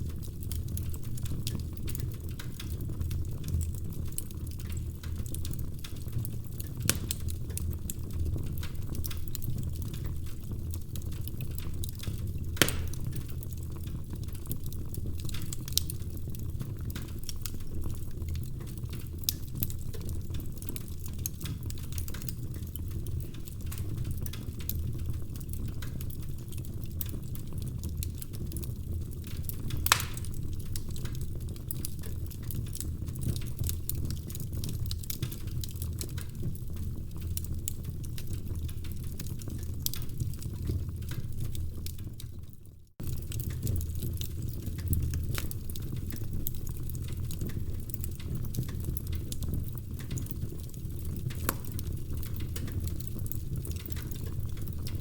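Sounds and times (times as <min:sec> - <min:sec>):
fireplace flames rumbling: 0:00.0 - 0:55.0
sharp fire pops: 0:06.8 - 0:07.3, 0:12.5 - 0:13.3, 0:29.7 - 0:30.9, 0:51.3 - 0:52.8
logs crackling: 0:11.3 - 0:13.4, 0:29.8 - 0:31.2.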